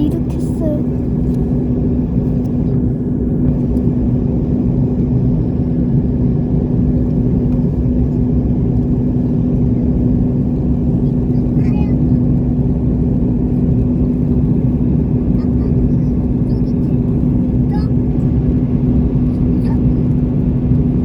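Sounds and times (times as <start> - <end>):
airliner engines droning in cabin: 0.0 - 21.0.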